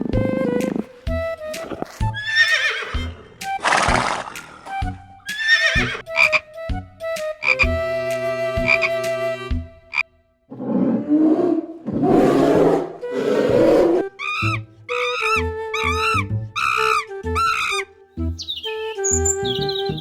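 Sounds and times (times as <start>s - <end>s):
background music with steady beat: 0.0s - 9.9s, 18.2s - 20.0s
rough wavering animal calls: 10.6s - 17.8s.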